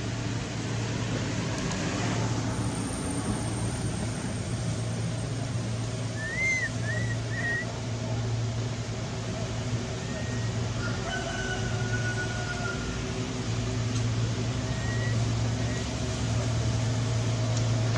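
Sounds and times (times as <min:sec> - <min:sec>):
low hum of traffic: 0:00.0 - 0:17.9
whistled chirps: 0:06.1 - 0:07.7, 0:14.7 - 0:15.9.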